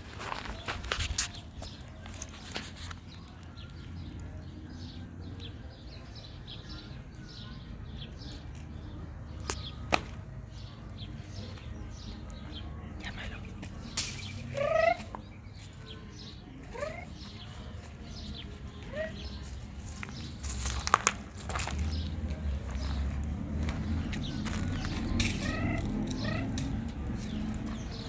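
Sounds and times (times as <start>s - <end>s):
small birds chirping: 0.0s - 28.0s
loud pitched bird call: 14.1s - 15.2s.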